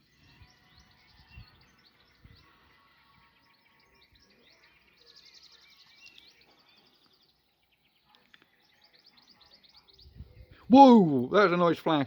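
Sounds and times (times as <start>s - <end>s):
faint songbirds singing: 0.0s - 12.0s.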